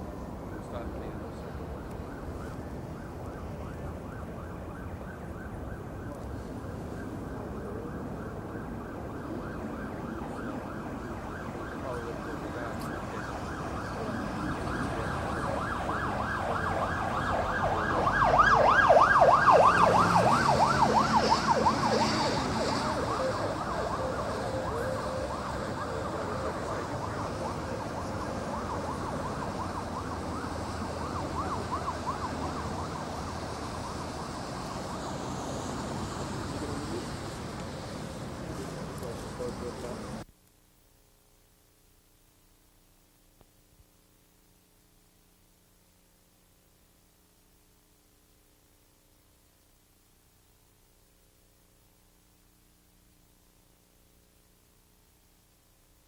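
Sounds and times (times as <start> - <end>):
street traffic rumble: 0.0 - 40.3
siren yelping: 0.3 - 35.3.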